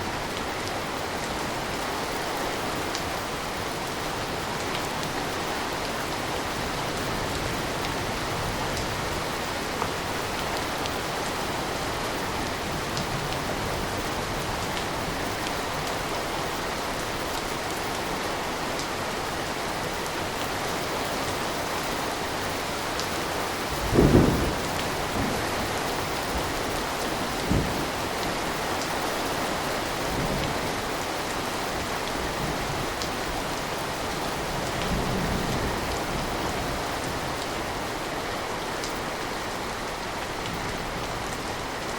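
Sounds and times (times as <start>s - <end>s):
steady rain: 0.0s - 41.9s
thunder clap: 23.8s - 25.7s, 27.4s - 28.0s.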